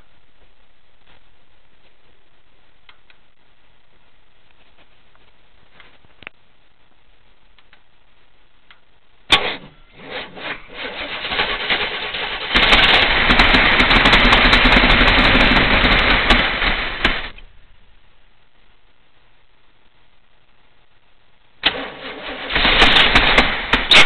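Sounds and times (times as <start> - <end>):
engine cranking and running: 9.4 - 17.4, 21.6 - 24.0.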